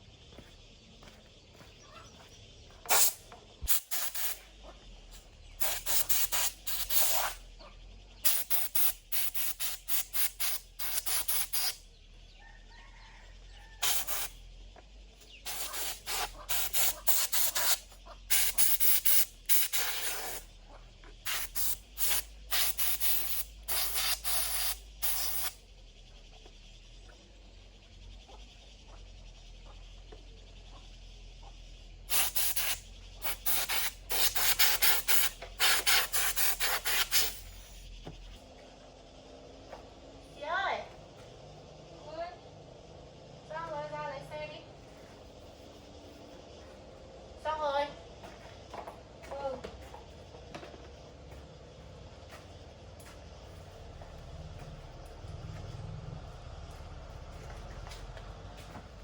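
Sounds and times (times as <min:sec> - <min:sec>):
short hissing spray bursts: 0:02.9 - 0:04.5, 0:05.6 - 0:07.4, 0:08.2 - 0:11.8, 0:13.8 - 0:14.4, 0:15.4 - 0:20.5, 0:21.2 - 0:25.6, 0:32.1 - 0:37.8
faint low hum: 0:37.3 - 0:59.0.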